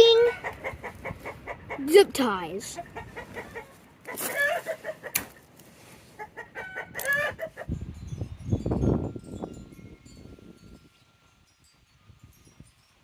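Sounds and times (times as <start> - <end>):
chickens clucking: 0.1 - 5.5, 6.1 - 7.7.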